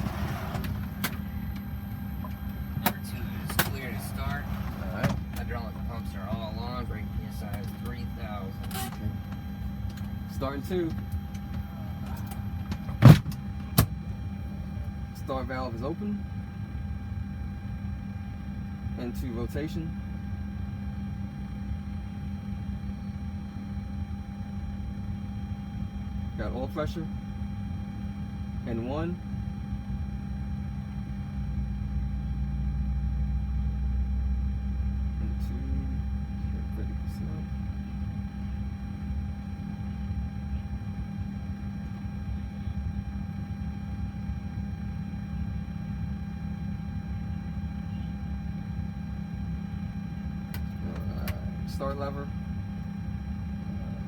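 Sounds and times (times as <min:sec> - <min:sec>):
thin steady tones: 0:00.0 - 0:12.8
jet engine starter rumble: 0:00.0 - 0:14.0
low rumble and hum in cockpit: 0:00.0 - 0:54.0
steady whine of tones: 0:00.0 - 0:54.0.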